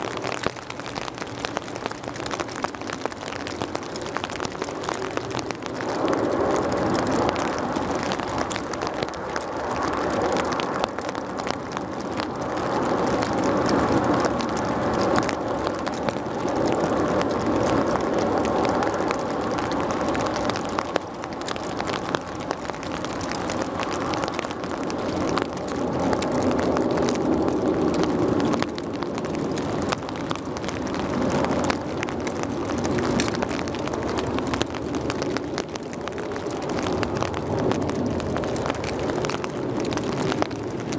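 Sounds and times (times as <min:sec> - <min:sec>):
heavy rain: 0:00.0 - 0:40.9
raindrops ticking: 0:00.0 - 0:40.9
jet airliner engine noise: 0:03.5 - 0:40.9.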